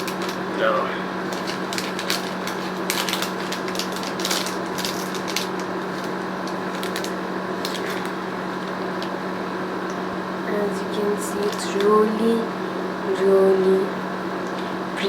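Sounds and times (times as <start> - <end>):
packaging rustling and clicks: 0.0 - 0.4, 1.3 - 9.1
steady electrical hum: 0.0 - 15.0.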